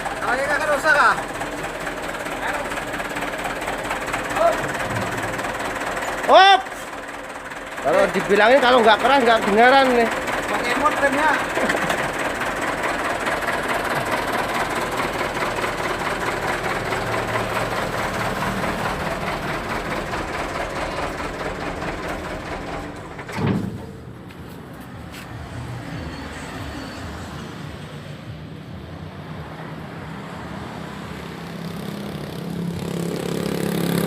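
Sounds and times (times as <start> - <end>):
heavy vehicle engine running: 0.0 - 34.0.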